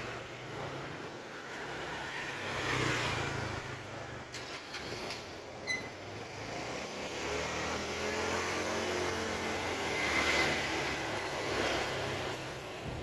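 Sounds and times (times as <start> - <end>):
vehicle engine passing by: 1.6 - 5.1, 6.2 - 13.0.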